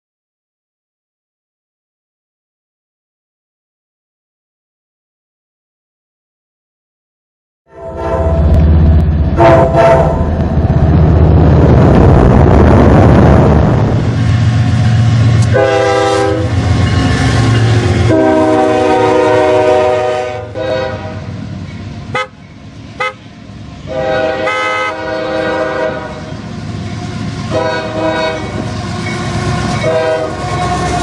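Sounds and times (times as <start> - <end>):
train air horn blasts: 7.7 - 8.6, 9.3 - 10.4, 15.4 - 16.6, 18.0 - 21.3, 22.1 - 22.4, 23.0 - 23.2, 23.9 - 26.3, 27.5 - 31.0
locomotive engine rumble: 7.9 - 31.0.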